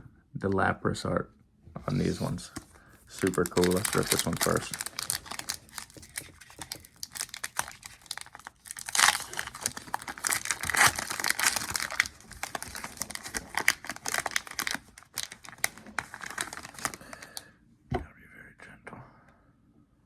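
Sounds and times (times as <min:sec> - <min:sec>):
foil wrapper tearing: 0:03.1 - 0:17.3
foil wrapper crinkling: 0:03.1 - 0:17.4.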